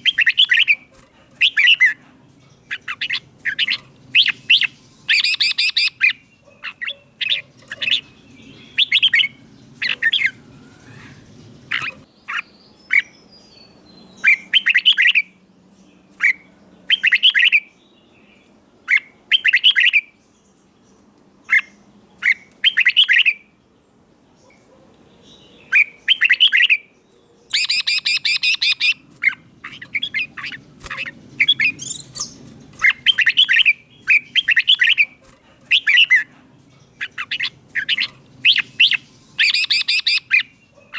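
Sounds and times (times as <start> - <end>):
bird singing chirpy whistles: 0.0 - 0.8, 2.7 - 15.4, 16.9 - 17.7, 25.7 - 26.9, 27.5 - 29.0, 29.7 - 35.1, 37.0 - 40.5.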